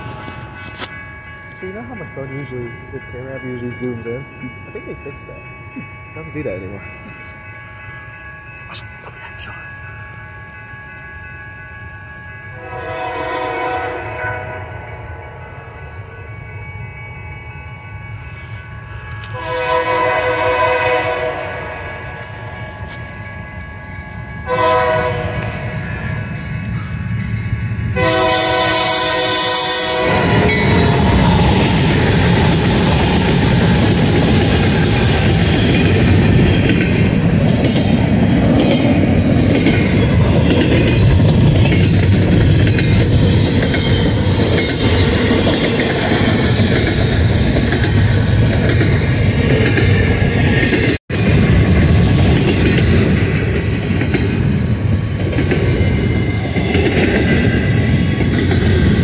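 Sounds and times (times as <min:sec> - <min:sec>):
train rumbling past: 0:00.0 - 0:59.0
locomotive horn chord: 0:12.6 - 0:14.8, 0:19.2 - 0:22.1, 0:24.4 - 0:25.8, 0:28.0 - 0:30.6.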